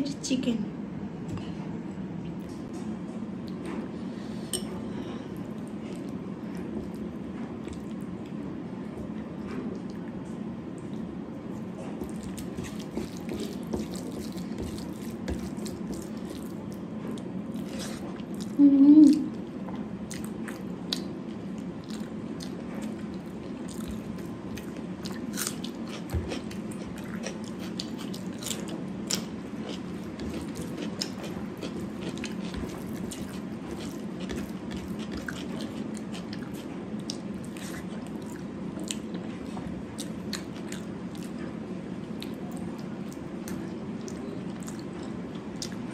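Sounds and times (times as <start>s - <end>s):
low background hum: 0.0s - 45.9s
short pitched vocal hum: 18.6s - 19.3s
chewing with wet mouth clicks: 19.7s - 41.5s, 42.2s - 45.8s.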